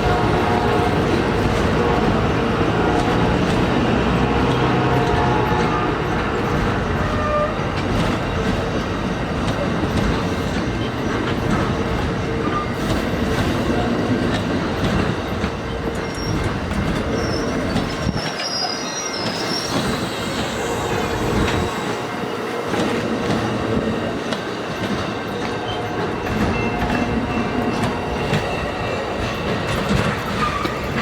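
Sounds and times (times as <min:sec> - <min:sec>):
train rumbling on rails: 0:00.0 - 0:31.0
high wheel squeal: 0:14.8 - 0:31.0.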